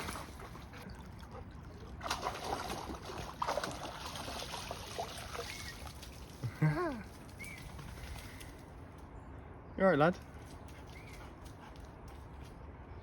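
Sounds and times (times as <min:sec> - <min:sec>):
river water splashing and trickling: 0:00.0 - 0:08.6.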